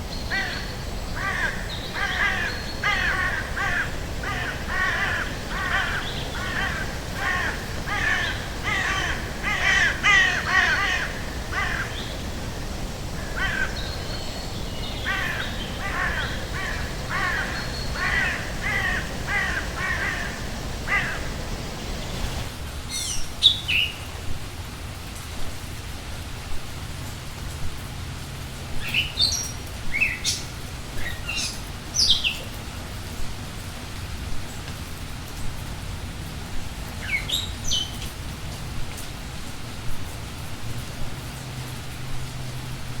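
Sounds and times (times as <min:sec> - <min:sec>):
crows cawing: 0:00.2 - 0:22.5.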